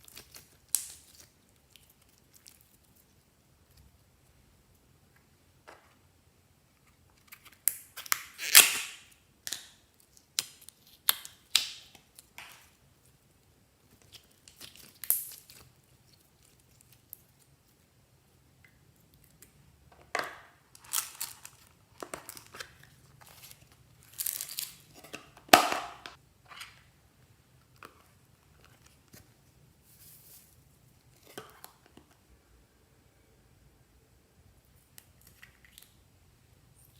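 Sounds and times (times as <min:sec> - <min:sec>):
slime popping and crackling: 0:00.0 - 0:02.9, 0:07.6 - 0:12.7, 0:14.0 - 0:17.4.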